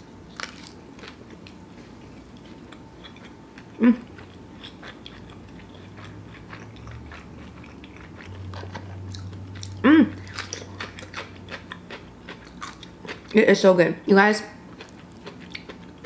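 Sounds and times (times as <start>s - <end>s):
person chewing crunchy food: 0.3s - 13.4s, 14.7s - 16.0s
person humming: 3.8s - 4.1s, 9.8s - 10.2s.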